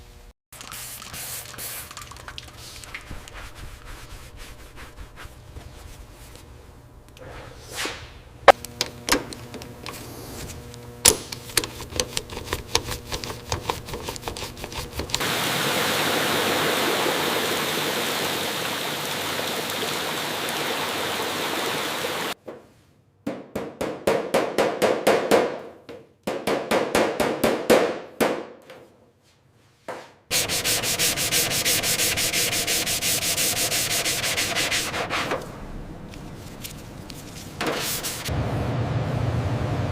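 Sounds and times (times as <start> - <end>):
hand sanding a surface: 3.1 - 6.1, 11.8 - 15.2, 30.3 - 35.4, 37.2 - 38.3.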